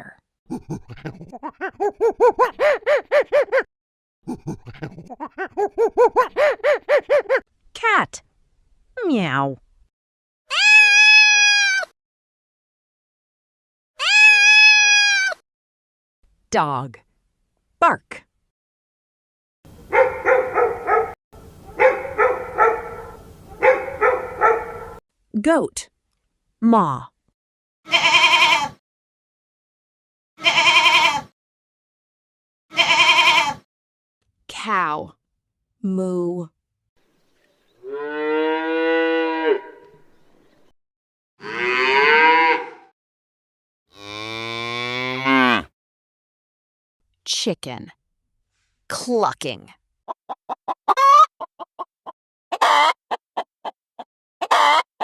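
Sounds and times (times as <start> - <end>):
dog barking: 1.8 - 3.7, 5.7 - 7.4, 19.9 - 25.0
cow mooing: 37.8 - 40.0, 41.4 - 42.9, 43.9 - 45.7.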